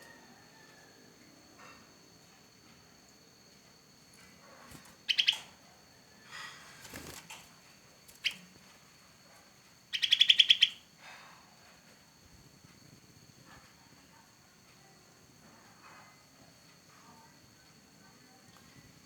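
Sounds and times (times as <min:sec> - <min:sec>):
bulbul calling: 0:05.0 - 0:05.6, 0:08.2 - 0:08.5, 0:09.9 - 0:10.9.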